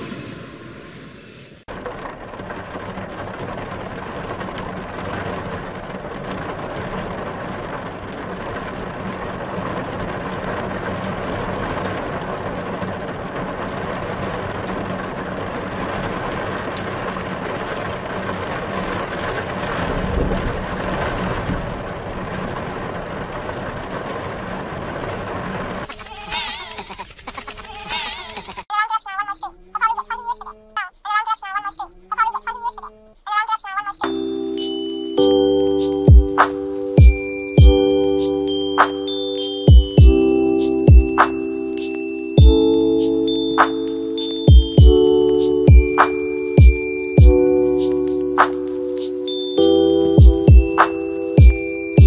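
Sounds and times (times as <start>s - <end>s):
engine idling rumble: 1.7s - 25.9s
train: 1.7s - 25.9s.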